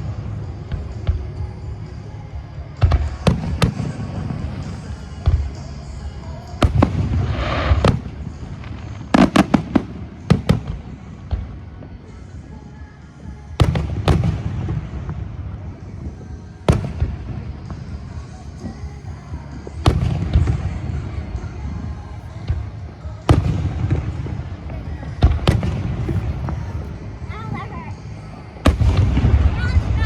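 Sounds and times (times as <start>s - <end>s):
low rumble of echoing booms: 0.0s - 12.2s, 13.6s - 30.0s
fireworks bursting with sharp bangs: 0.0s - 30.0s.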